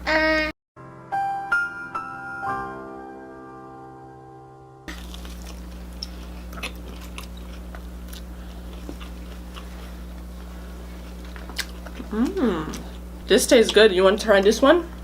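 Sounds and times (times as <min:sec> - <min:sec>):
piano music: 0:00.8 - 0:04.9
crunching and chewing: 0:04.9 - 0:13.8
steady electrical hum: 0:04.9 - 0:15.0.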